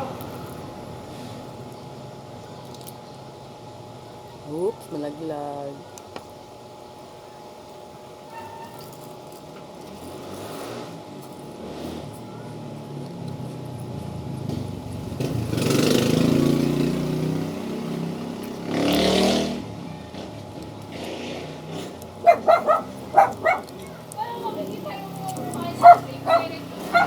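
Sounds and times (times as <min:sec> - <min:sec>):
dog yipping: 0:08.3 - 0:08.9, 0:22.2 - 0:27.0.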